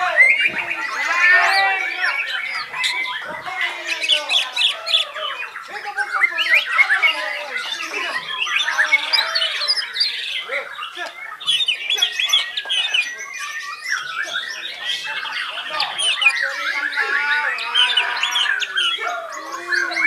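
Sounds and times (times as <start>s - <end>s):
birds singing: 0.0s - 20.0s.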